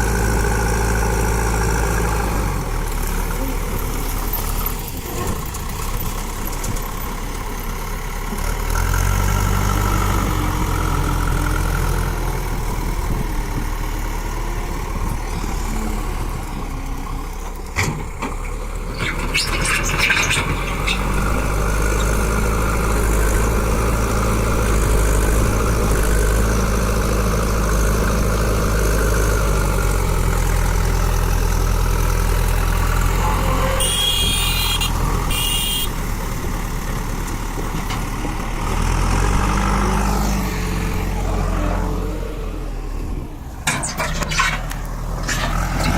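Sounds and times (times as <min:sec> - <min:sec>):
diesel engine running: 0:00.0 - 0:45.9
short rattle: 0:43.6 - 0:45.9.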